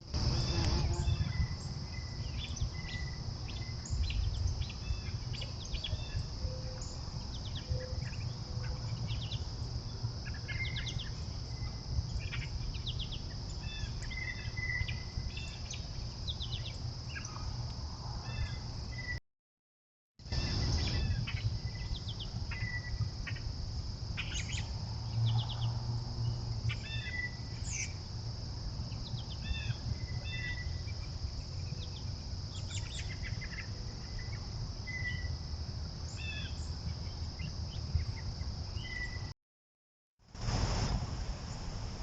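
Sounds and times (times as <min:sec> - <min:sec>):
high-pitched insect drone: 0:00.2 - 0:04.0.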